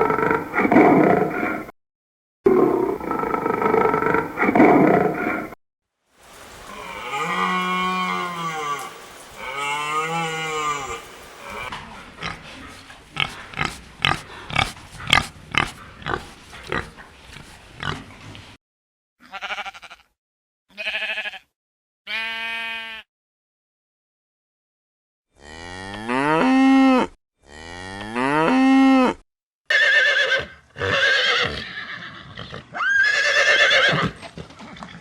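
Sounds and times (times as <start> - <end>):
farm animal calls: 0.0 - 1.7, 2.6 - 5.6, 6.4 - 18.6
rapid grunts: 10.7 - 18.6.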